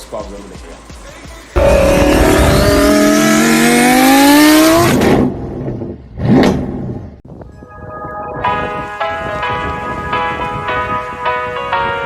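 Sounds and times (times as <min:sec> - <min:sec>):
car engine accelerating: 0:01.6 - 0:06.7.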